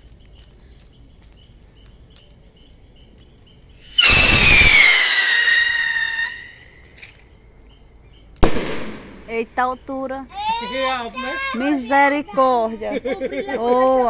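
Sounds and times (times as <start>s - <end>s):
descending rocket whistle: 3.9s - 6.8s
firework rocket launching: 4.0s - 6.8s, 8.4s - 9.3s.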